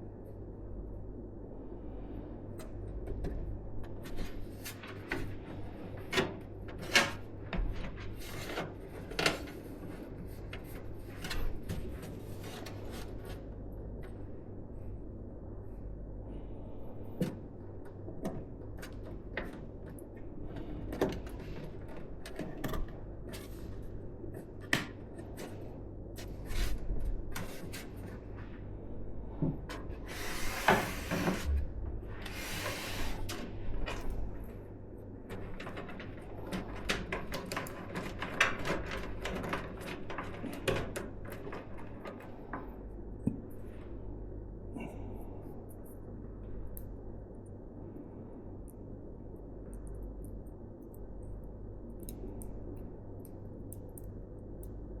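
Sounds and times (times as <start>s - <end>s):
rustling and scraping: 6.7s - 13.6s, 20.2s - 34.6s.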